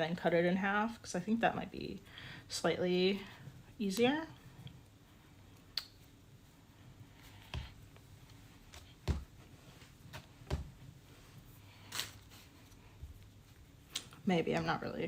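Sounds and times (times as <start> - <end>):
clay scuffing: 7.2 - 13.6
clay thudding on board: 8.8 - 9.4.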